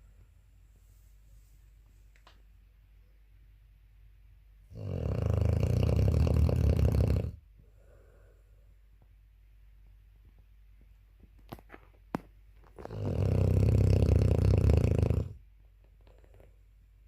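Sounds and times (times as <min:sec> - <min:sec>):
puppy snoring: 0:04.7 - 0:07.4, 0:12.8 - 0:15.4.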